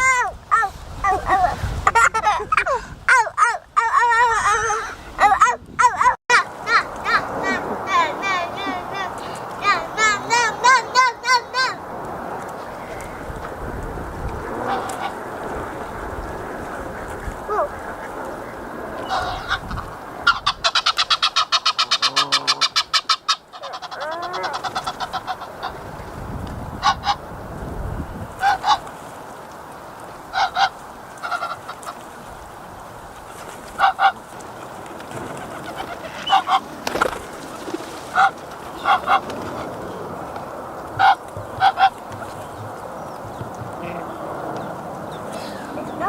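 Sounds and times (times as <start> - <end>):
geese honking: 14.6 - 15.2, 17.6 - 25.8, 33.8 - 34.2, 35.4 - 37.3, 38.1 - 39.7.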